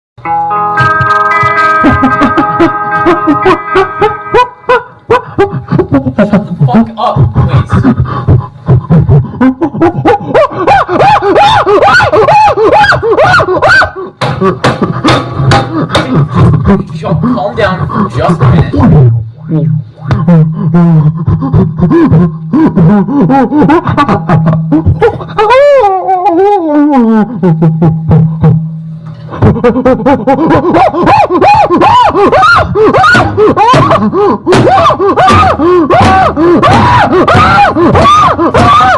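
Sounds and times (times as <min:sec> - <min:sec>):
person whooping monkey-like hoots: 0:10.0 - 0:16.6, 0:20.0 - 0:24.1, 0:29.5 - 0:38.9
low thumps: 0:14.2 - 0:22.6
rapid shrieking cries: 0:34.7 - 0:38.9.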